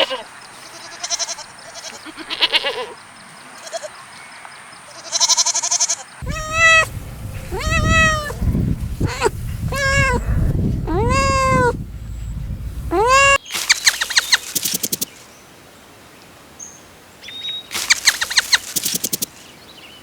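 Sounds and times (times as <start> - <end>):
goat bleating: 0.0 - 3.0, 4.9 - 13.4
low rumble: 6.2 - 13.4.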